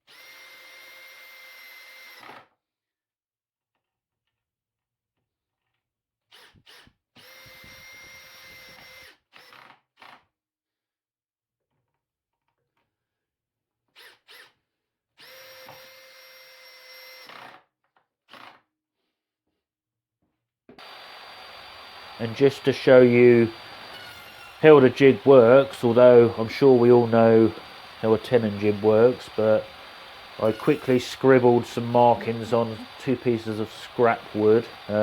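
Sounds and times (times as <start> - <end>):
power drill driving screws: 0.0 - 2.5, 6.3 - 10.2, 14.0 - 14.6, 15.2 - 17.6, 20.8 - 35.0.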